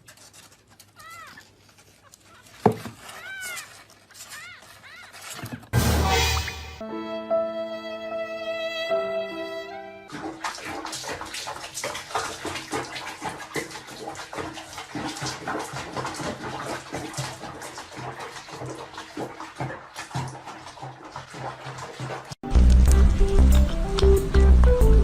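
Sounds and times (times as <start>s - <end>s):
water splashing in a tub: 10.1s - 24.8s.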